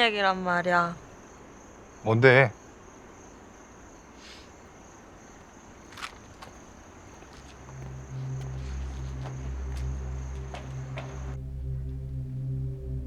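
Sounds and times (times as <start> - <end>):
crickets trilling: 0.0 - 13.0
low droning music score: 6.8 - 13.0.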